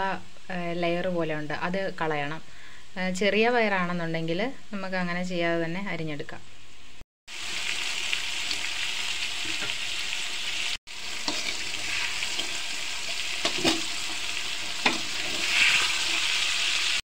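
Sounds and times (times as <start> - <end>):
beans sizzling in a pan: 7.3 - 17.0
stirring scrapes in pan: 11.2 - 16.8.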